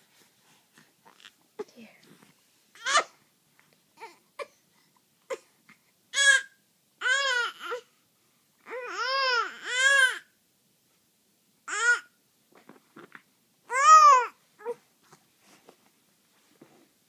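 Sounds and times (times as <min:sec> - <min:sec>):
baby fussing and crying: 0:00.7 - 0:03.2, 0:04.0 - 0:07.9, 0:08.6 - 0:10.3, 0:11.7 - 0:12.1, 0:13.7 - 0:14.9.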